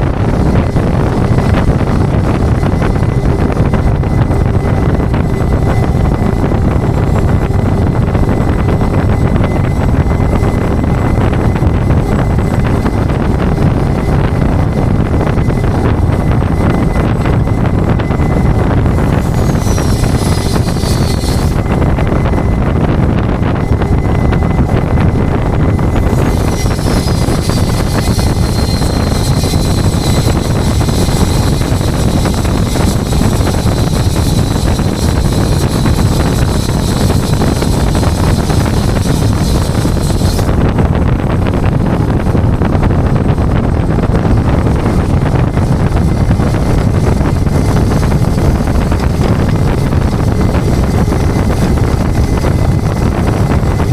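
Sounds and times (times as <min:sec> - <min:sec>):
wind buffeting microphone: 0:00.0 - 0:53.9
faint high whine: 0:00.1 - 0:40.6.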